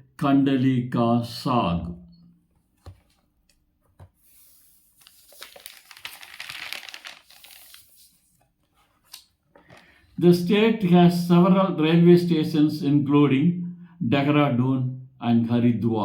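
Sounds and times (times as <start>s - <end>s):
faint crackling rustle: 4.3s - 9.2s.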